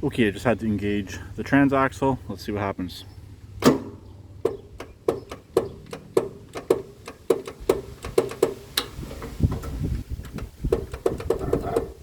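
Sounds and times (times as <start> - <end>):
starter solenoid clicking: 3.6 - 12.0.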